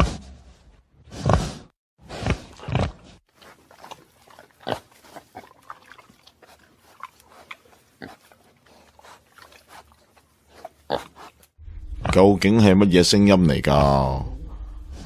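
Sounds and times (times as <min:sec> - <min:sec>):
pigs grunting and oinking: 0:01.1 - 0:12.2.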